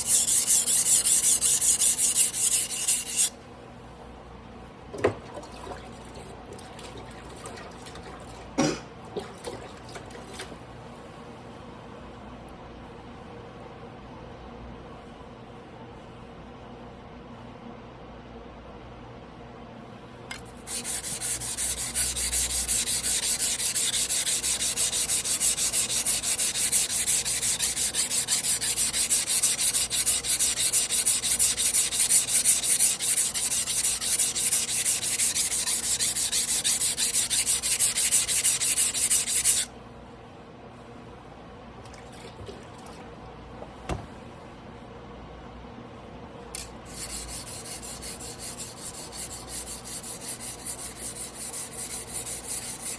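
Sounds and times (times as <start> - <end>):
knife scraping on whetstone: 0.0 - 3.3, 20.6 - 39.7, 46.6 - 52.9.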